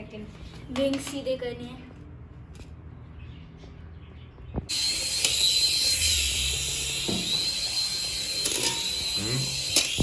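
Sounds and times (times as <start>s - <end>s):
small propeller motor whirring: 4.7s - 10.0s.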